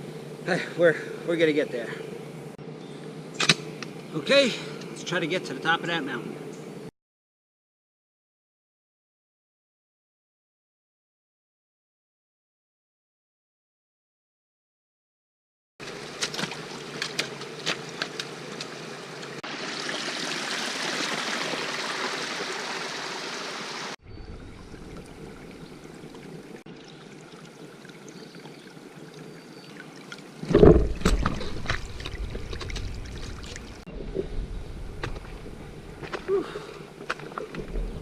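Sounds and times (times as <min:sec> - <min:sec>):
stream running water: 0:15.8 - 0:38.0
loud low thump with crackling: 0:30.5 - 0:33.5.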